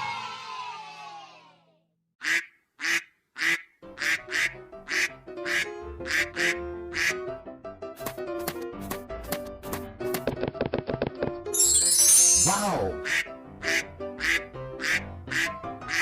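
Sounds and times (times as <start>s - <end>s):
cartoon duck quacking: 2.2s - 7.2s, 12.9s - 16.0s
short tune: 11.6s - 12.9s.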